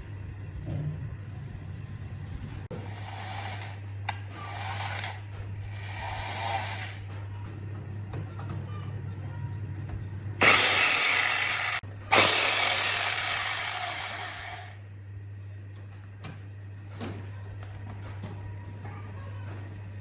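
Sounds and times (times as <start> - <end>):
electric chainsaw running: 2.8 - 7.0, 10.4 - 14.8.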